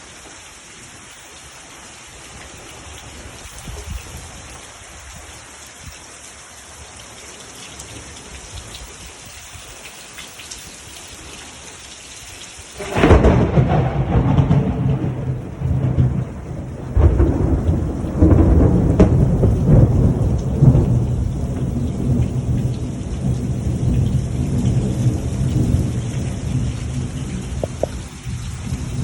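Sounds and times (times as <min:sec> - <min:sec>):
steady rain: 0:00.0 - 0:29.0
thunder rumbling: 0:12.7 - 0:29.0.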